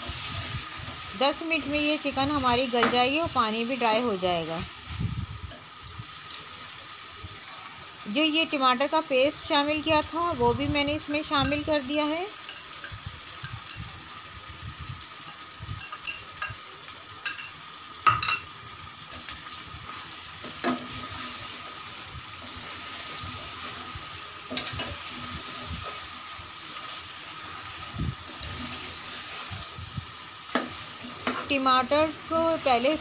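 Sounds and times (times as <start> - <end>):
food sizzling in a pan: 0.0 - 33.0.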